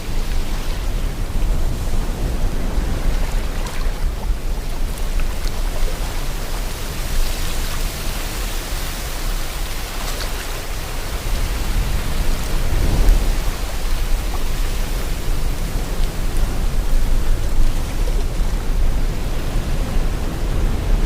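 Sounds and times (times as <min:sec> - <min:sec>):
sea water washing: 0:00.0 - 0:21.0
wind: 0:00.0 - 0:21.0
low rumble: 0:10.9 - 0:21.0.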